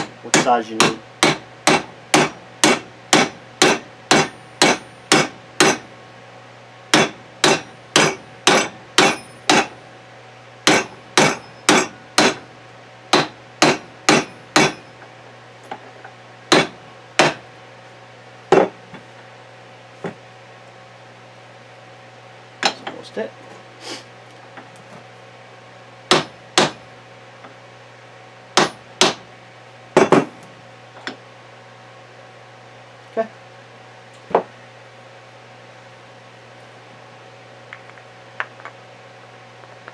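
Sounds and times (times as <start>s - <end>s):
hammer tapping metal: 0.0s - 5.8s, 7.0s - 9.7s, 10.6s - 12.4s, 13.2s - 14.9s, 16.5s - 17.4s, 26.1s - 26.8s.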